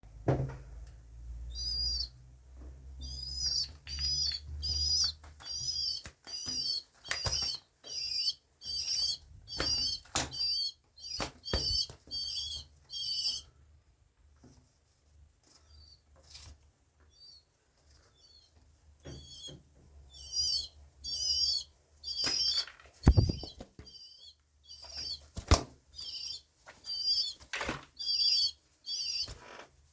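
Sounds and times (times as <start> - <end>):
young pigeon squeaky peeps: 1.5 - 2.2, 2.8 - 13.6, 15.5 - 16.5, 17.1 - 29.6
wing flapping: 22.2 - 24.0.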